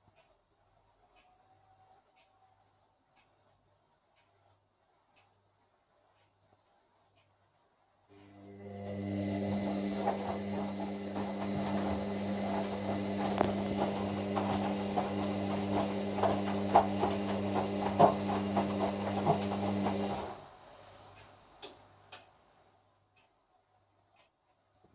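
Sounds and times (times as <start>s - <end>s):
washer dryer motor humming: 8.1s - 20.6s.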